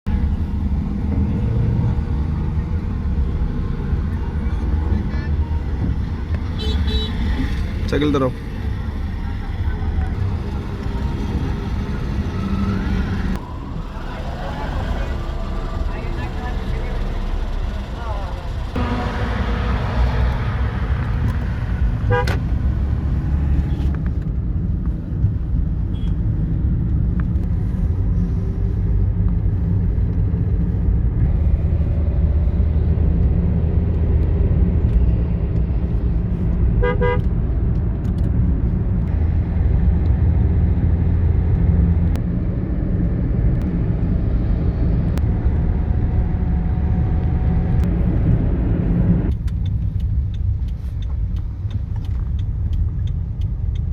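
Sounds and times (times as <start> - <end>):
vehicle engines rumbling: 0.0 - 53.9
car horn beeps: 6.5 - 7.4, 22.0 - 22.4, 25.9 - 26.2, 36.8 - 37.3.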